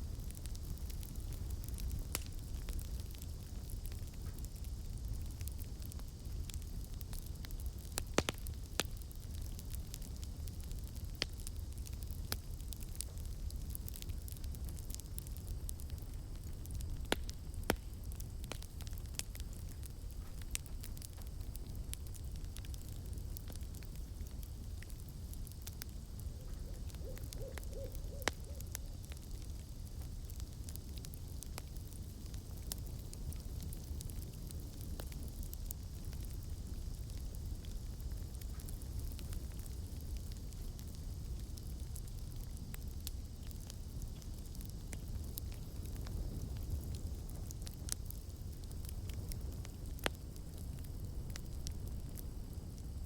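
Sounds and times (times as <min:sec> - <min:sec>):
campfire crackling: 0:00.0 - 0:53.0
sharp pops of fire: 0:00.0 - 0:53.0
owl hooting: 0:26.4 - 0:28.7.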